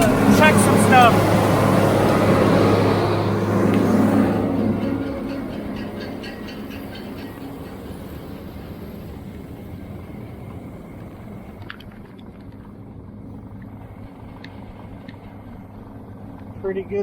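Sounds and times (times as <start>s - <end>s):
tractor engine running: 0.0s - 11.7s.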